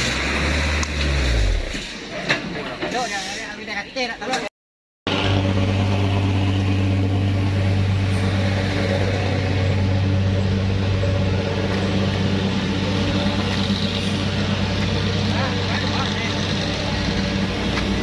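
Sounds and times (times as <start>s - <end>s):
vehicle engine low drone: 5.1s - 18.0s.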